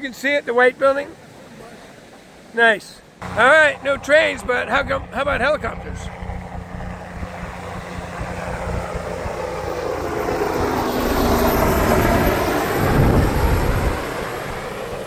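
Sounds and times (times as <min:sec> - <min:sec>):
helicopter flying past: 0:03.2 - 0:15.0.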